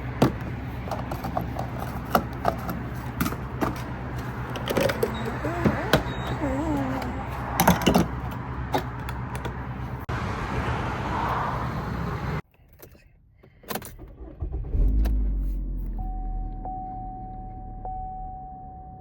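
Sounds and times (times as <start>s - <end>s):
truck engine humming: 0.0s - 12.4s.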